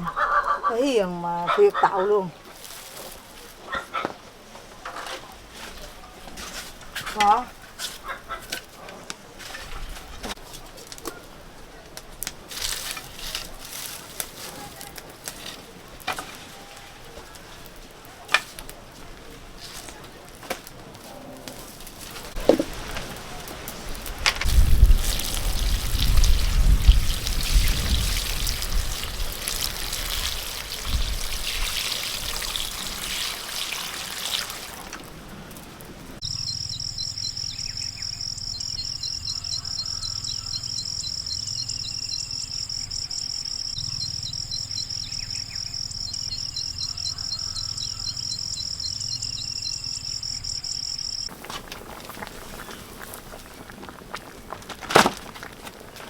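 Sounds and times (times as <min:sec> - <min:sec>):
insects droning: 0:21.2 - 0:56.0
bird calls: 0:36.2 - 0:51.3.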